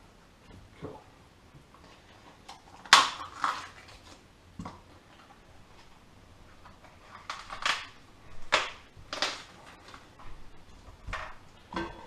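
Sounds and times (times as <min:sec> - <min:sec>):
bone and crisp skin crunching: 0:02.5 - 0:04.2.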